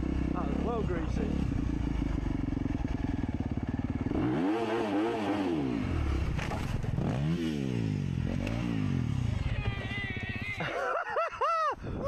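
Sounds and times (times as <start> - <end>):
dirt bike engine revving: 0.0 - 9.6.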